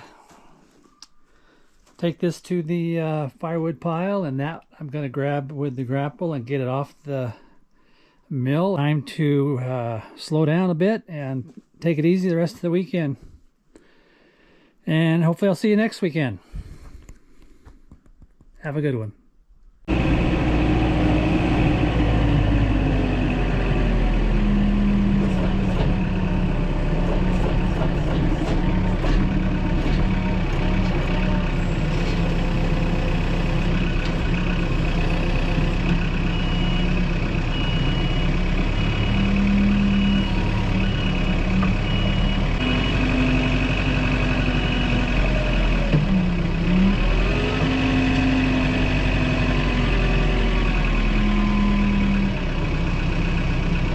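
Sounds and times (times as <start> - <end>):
machine engine revving: 19.9 - 53.4.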